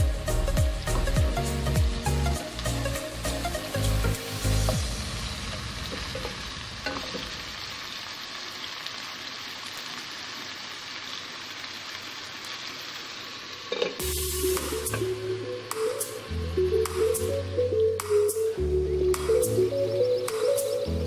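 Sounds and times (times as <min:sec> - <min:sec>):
background music: 0:00.0 - 0:07.0, 0:14.0 - 0:21.0
chicken sizzling in hot oil: 0:00.0 - 0:21.0.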